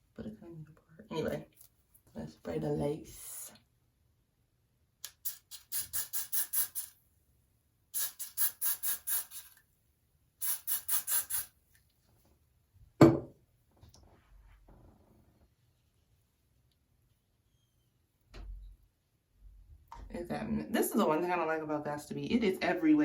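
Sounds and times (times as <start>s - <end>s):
spray bottle hissing: 5.0s - 7.0s, 8.0s - 9.6s, 10.4s - 11.6s.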